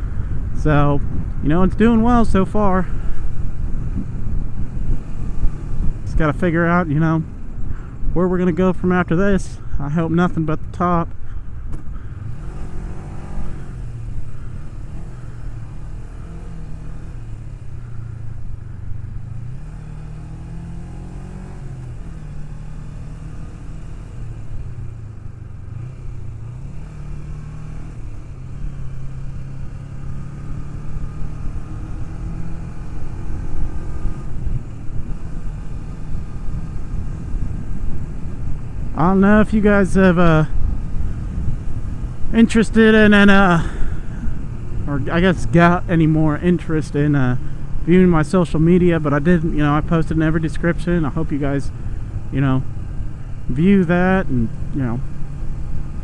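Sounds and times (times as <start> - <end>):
motorcycle engine revving: 0.0 - 9.0, 11.2 - 56.0
low rush of riding noise: 0.0 - 56.0.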